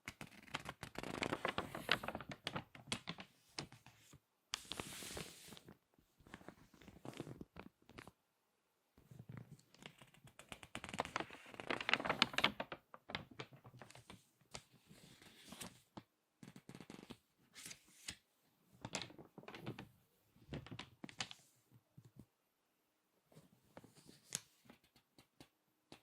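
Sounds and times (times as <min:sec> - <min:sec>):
magazine pages crinkling: 0:00.2 - 0:03.8, 0:09.7 - 0:14.2.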